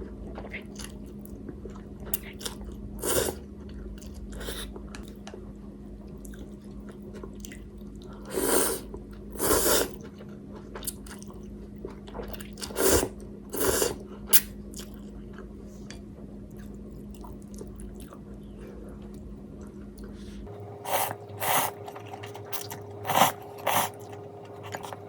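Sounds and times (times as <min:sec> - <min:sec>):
faint steady hum: 0:00.0 - 0:25.0
soft chewing: 0:00.0 - 0:25.0
loud noodle slurps: 0:08.3 - 0:08.8, 0:09.4 - 0:10.0, 0:12.7 - 0:14.0, 0:20.8 - 0:25.0.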